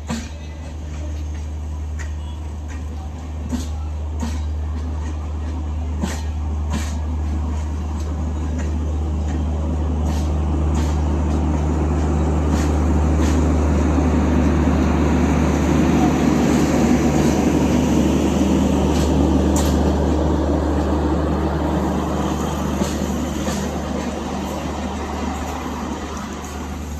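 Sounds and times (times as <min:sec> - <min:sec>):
passenger train rumbling past: 0:00.0 - 0:26.9
wheels clicking over rail joints: 0:17.0 - 0:26.9.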